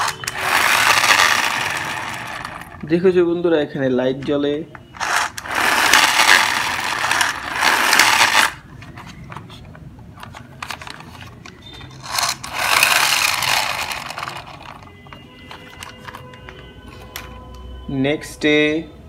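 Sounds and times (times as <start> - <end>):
toy car wheels whirring: 0.0 - 2.8, 5.0 - 9.4, 10.2 - 14.9.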